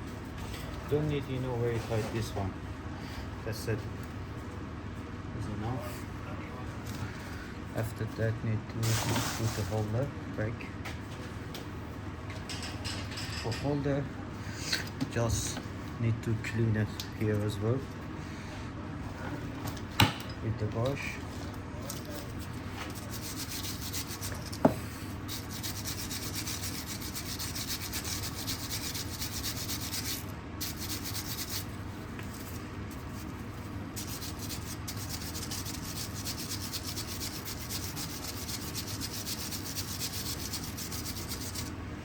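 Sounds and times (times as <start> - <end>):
brush scrubbing metal: 22.9 - 24.6, 25.3 - 31.7, 32.3 - 41.7.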